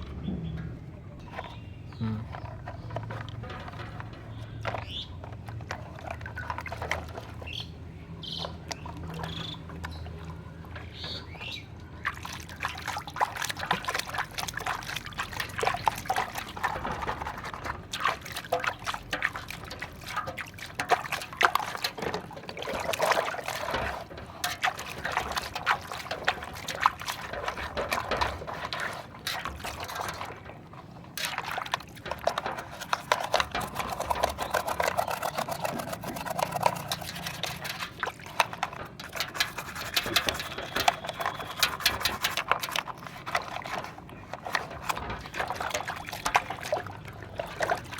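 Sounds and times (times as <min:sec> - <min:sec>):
water pouring and splashing: 0:01.2 - 0:47.9.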